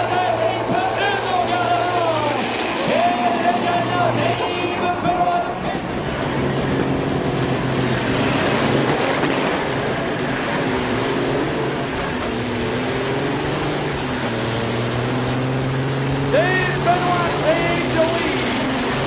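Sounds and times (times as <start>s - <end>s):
diesel truck engine droning: 0.0s - 19.0s
high rising whistle: 2.0s - 5.8s, 7.7s - 9.0s.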